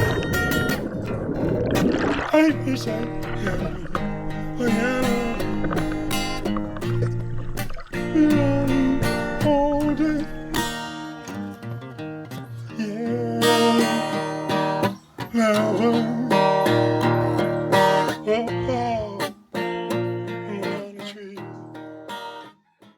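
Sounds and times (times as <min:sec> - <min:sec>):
strummed acoustic guitar: 0:00.0 - 0:22.9
person singing: 0:02.2 - 0:06.4, 0:07.9 - 0:11.5, 0:12.3 - 0:22.1.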